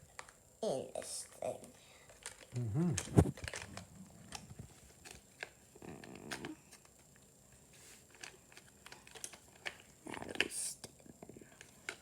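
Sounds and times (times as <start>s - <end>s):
low murmur: 2.6s - 3.4s
plastic toy pieces clicking: 8.2s - 9.8s.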